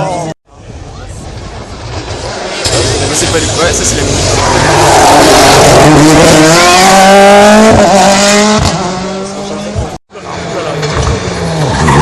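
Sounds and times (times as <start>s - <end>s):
rally car engine revving: 1.2s - 12.0s.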